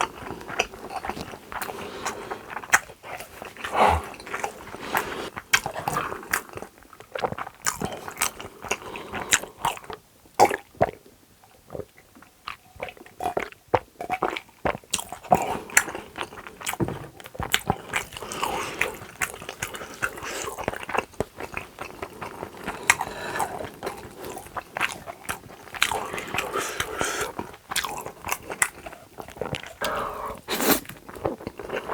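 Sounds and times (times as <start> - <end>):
chewing and biting food: 0.0 - 11.0, 11.6 - 31.9
wet mouth clicks: 29.4 - 31.5.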